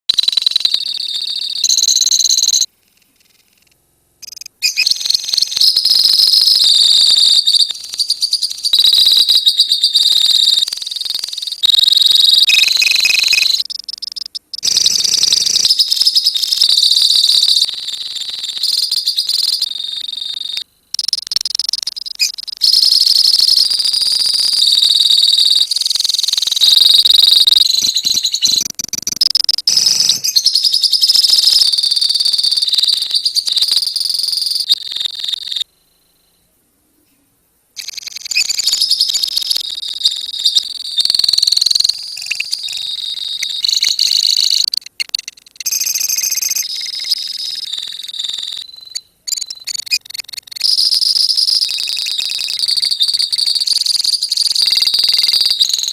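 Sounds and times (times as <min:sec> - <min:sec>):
lovebirds chattering: 0:04.2 - 0:25.8.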